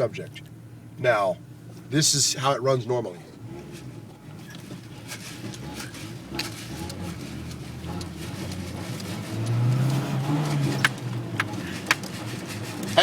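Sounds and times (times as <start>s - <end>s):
truck engine accelerating: 0.0s - 13.0s.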